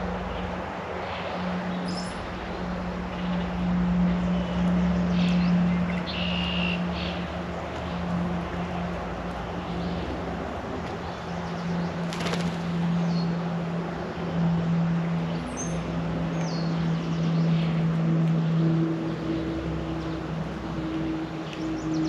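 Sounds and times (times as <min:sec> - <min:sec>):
steady low hum: 0:00.0 - 0:22.0
songbird chirps: 0:03.0 - 0:10.3, 0:14.4 - 0:22.0.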